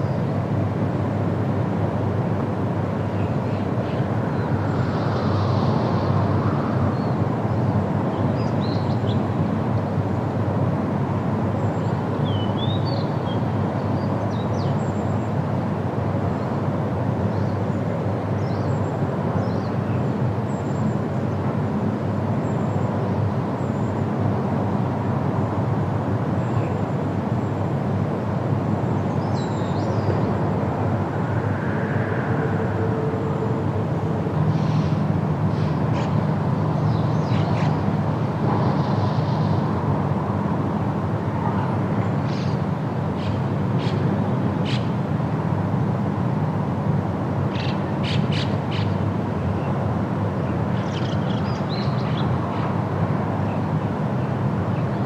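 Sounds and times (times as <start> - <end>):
low outdoor rumble: 28.8 - 42.0.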